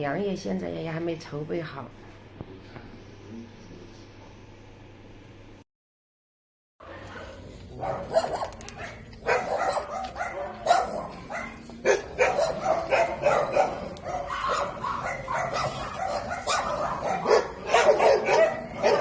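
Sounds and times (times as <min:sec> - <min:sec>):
dogs barking and yipping: 0:06.8 - 0:19.0.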